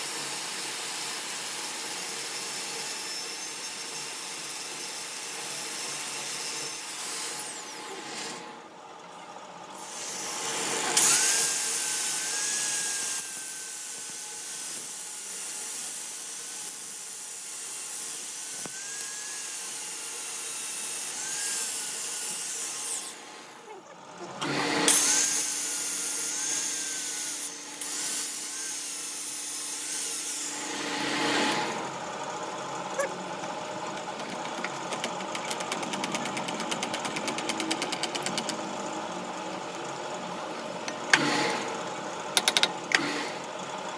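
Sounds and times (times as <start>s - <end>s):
power tool whining: 17.6s - 43.9s
fast regular ticking: 34.1s - 38.6s.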